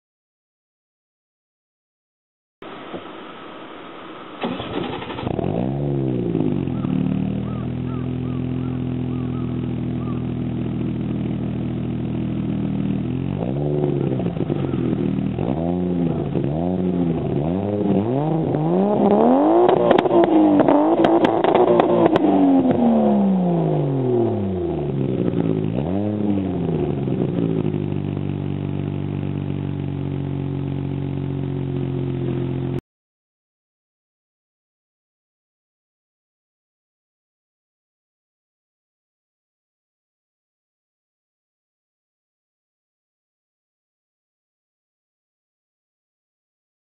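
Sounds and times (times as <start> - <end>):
car engine revving: 4.4 - 32.8
exhaust crackling pops: 17.1 - 22.9.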